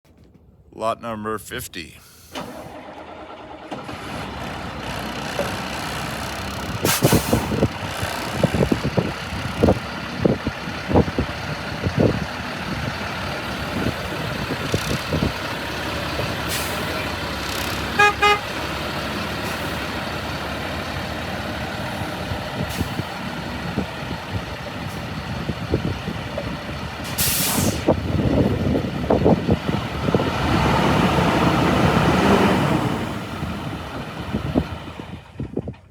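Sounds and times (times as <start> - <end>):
air brake hiss: 2.2 - 2.7, 6.8 - 7.6, 27.1 - 27.9
diesel truck engine running: 2.3 - 35.9.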